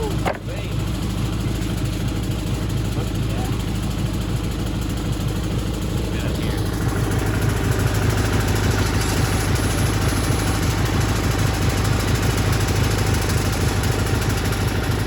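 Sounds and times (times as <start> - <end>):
band sawmill sawing log: 6.0 - 15.0.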